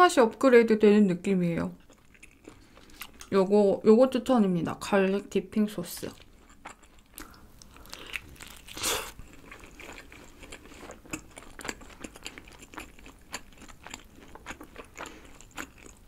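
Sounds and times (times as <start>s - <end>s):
close chewing with crunches: 1.8s - 3.4s, 6.0s - 16.0s.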